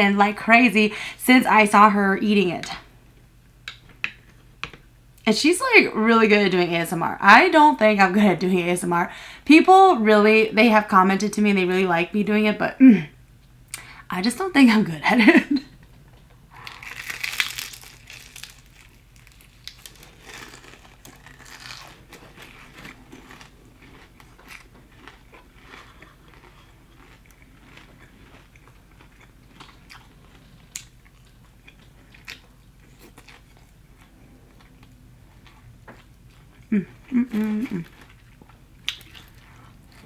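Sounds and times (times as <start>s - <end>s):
chewing crispy fried chicken: 16.6s - 40.0s.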